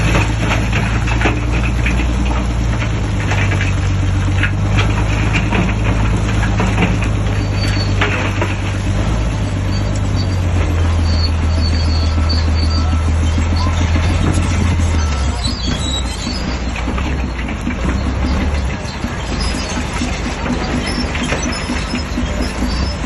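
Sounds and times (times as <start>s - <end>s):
scattered clicks and crackles: 0.0s - 8.9s
bulldozer diesel engine running: 0.0s - 23.0s.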